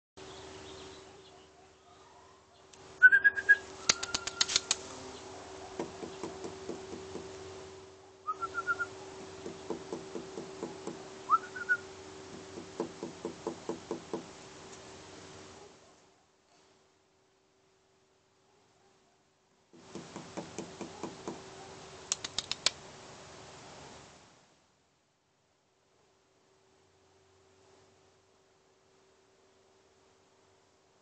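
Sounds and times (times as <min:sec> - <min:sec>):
quick ticking bird notes: 0:03.0 - 0:04.8, 0:05.8 - 0:07.3, 0:08.3 - 0:14.2, 0:19.8 - 0:21.4, 0:22.1 - 0:22.8
sharp clicks: 0:03.8 - 0:04.8, 0:22.1 - 0:22.8
short whistled bird note: 0:11.3 - 0:11.8.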